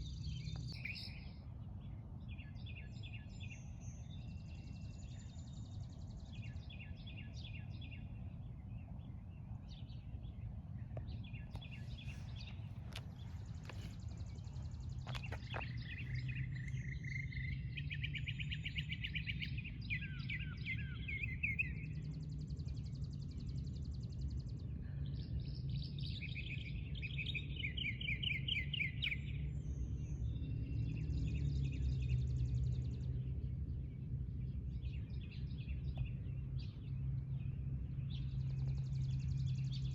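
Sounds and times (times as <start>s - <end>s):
low background rumble: 0.0s - 27.8s, 29.2s - 39.9s
songbirds singing: 0.0s - 39.9s.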